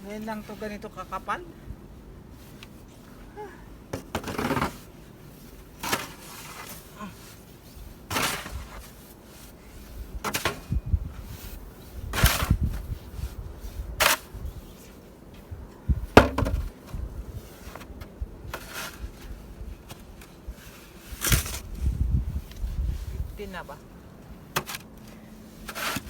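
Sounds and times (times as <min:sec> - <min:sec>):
snow shovel crunching and scraping: 0:04.3 - 0:09.6, 0:14.0 - 0:14.8, 0:25.5 - 0:26.0.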